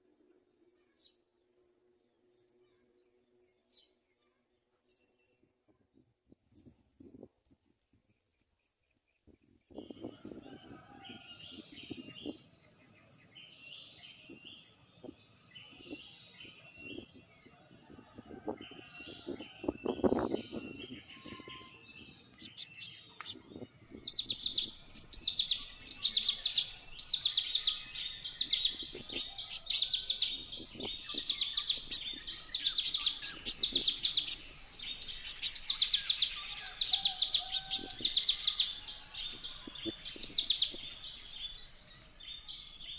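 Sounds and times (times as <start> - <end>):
small birds chirping: 18.1 - 42.9
high-pitched insect drone: 22.4 - 42.9.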